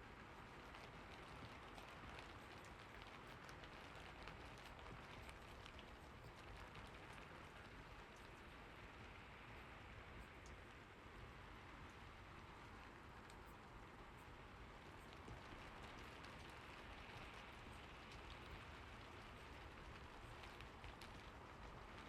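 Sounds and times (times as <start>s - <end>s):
faint steady rain: 0.0s - 22.0s
raindrop ticks: 0.0s - 22.0s.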